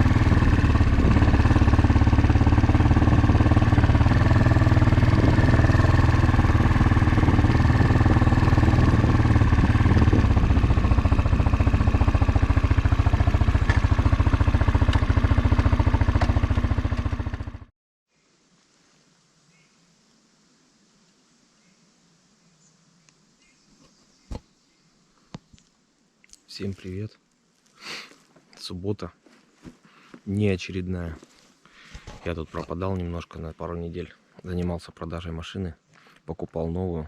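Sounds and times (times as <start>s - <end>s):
motorcycle engine idling: 0.0s - 17.7s.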